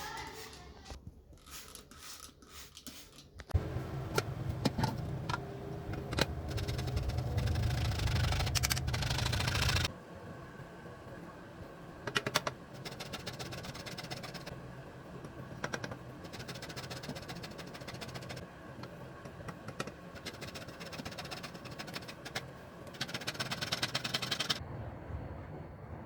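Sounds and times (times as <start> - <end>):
steady low hum: 3.6 - 23.1.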